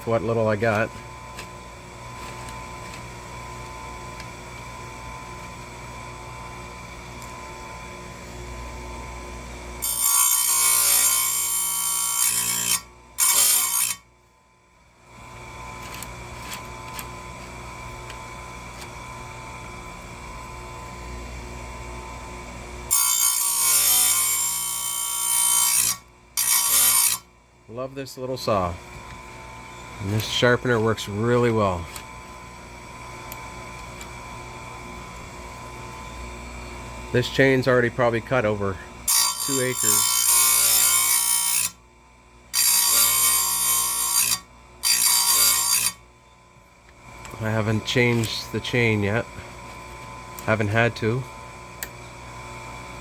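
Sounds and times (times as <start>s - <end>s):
grinding wheel whining: 9.8s - 14.0s, 29.2s - 32.0s, 37.1s - 41.7s
rough grinding on chain tooth: 9.8s - 14.0s, 39.2s - 41.6s.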